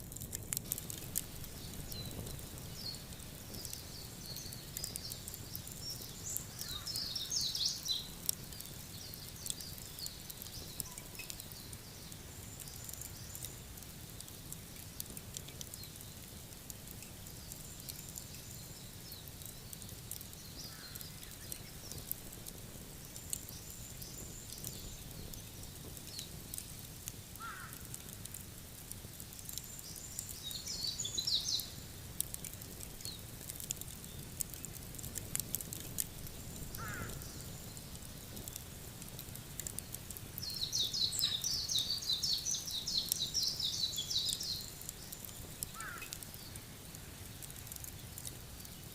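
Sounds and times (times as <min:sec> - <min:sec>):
wood fire crackling: 0:00.0 - 0:48.9
small bird chirping: 0:01.6 - 0:13.6, 0:29.5 - 0:31.8, 0:40.4 - 0:46.6.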